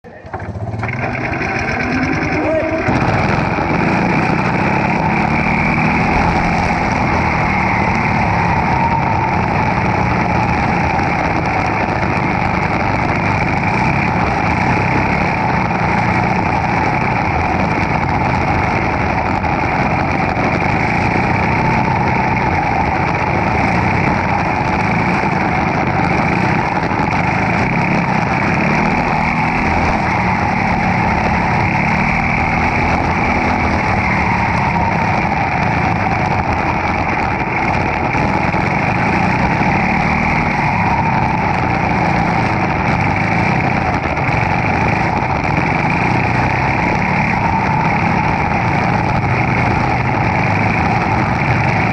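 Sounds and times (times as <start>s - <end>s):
kart engine revving: 0.0s - 51.9s.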